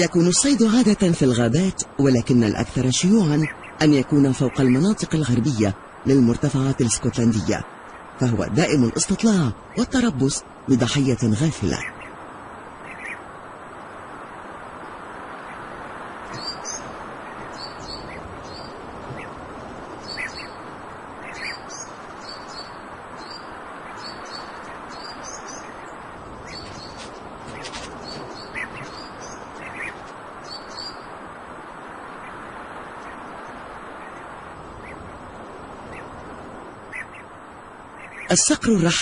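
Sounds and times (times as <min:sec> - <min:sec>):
small bird chirping: 0:11.7 - 0:13.3, 0:14.8 - 0:31.2.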